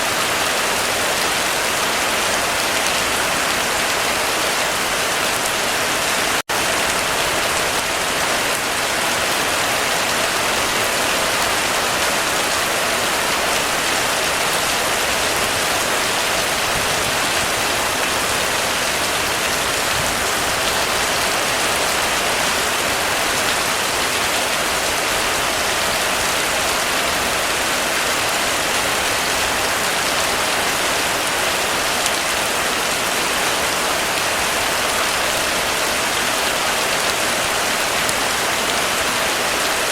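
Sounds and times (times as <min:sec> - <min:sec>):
heavy rain drumming on a roof: 0:00.0 - 0:39.9.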